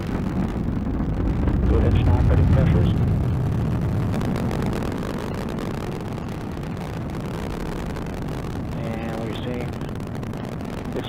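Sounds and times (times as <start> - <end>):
rocket engine rumble: 0.0 - 11.0.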